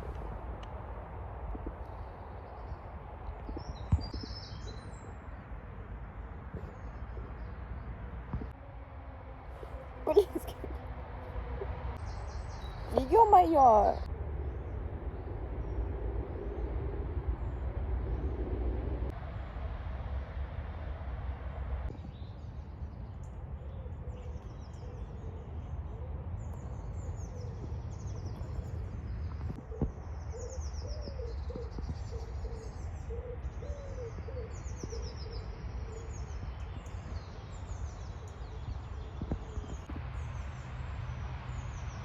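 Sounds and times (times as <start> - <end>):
songbirds chirping and trilling: 0.0 - 8.6, 9.4 - 18.5, 21.9 - 42.0
steady low rumble: 0.0 - 30.6.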